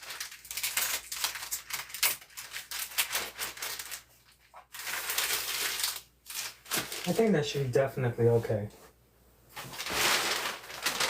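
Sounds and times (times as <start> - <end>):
plastic sheeting crinkling: 0.0 - 8.6, 9.5 - 11.0.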